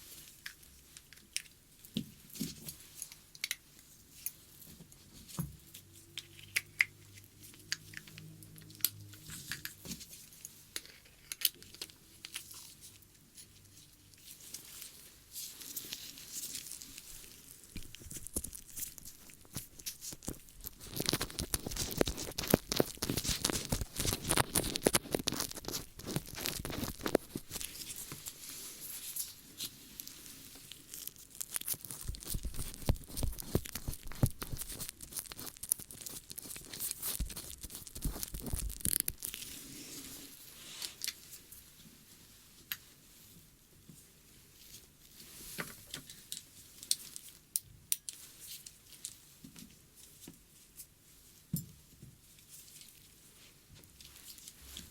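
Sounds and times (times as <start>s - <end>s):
crackling scratches and rustles: 0.0s - 54.9s.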